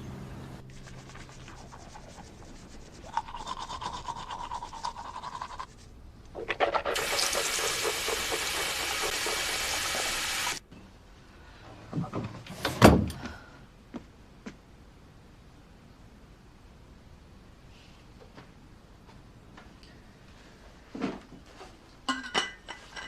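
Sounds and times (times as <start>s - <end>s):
fast rhythmic rubbing: 0.6s - 10.6s
running water: 6.9s - 10.6s.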